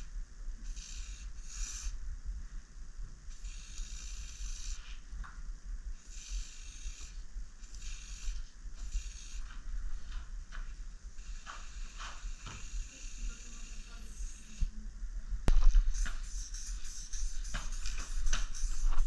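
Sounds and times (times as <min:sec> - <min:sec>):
spray can hissing: 0:07.8 - 0:09.4, 0:11.2 - 0:14.7, 0:15.9 - 0:19.0.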